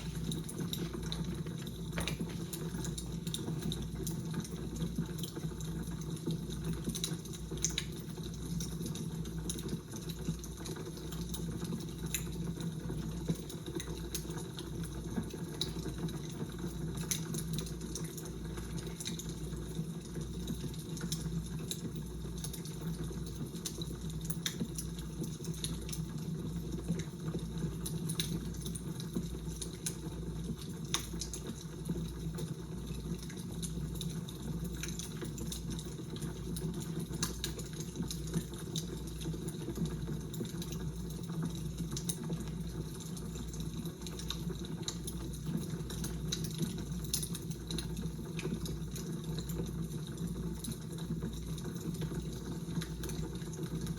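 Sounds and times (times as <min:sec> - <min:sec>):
fire crackling: 0:00.0 - 0:10.0.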